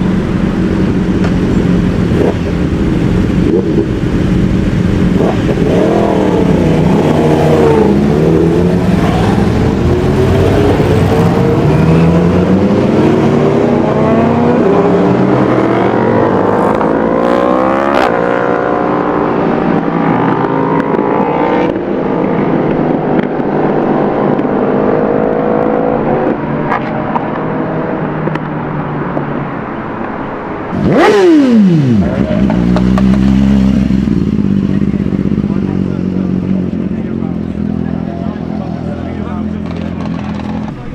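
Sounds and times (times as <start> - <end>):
motorcycle engines revving: 0.0 - 40.9.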